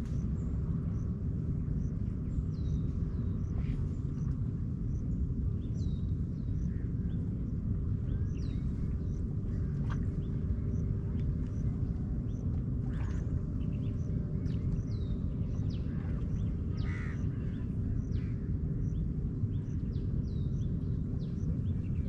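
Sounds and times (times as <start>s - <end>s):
steady low rumble: 0.0s - 22.0s
crows cawing: 16.8s - 17.2s.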